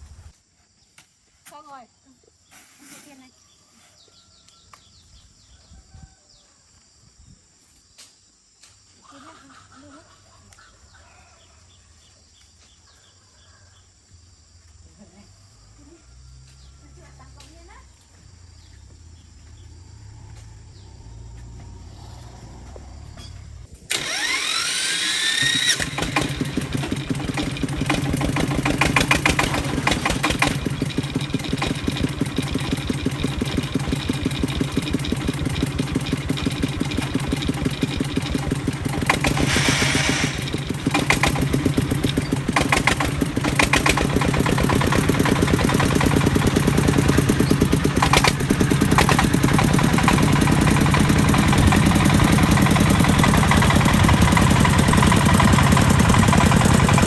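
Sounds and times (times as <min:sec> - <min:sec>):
tractor engine running: 0:18.8 - 0:57.0
rising whine: 0:18.9 - 0:25.8.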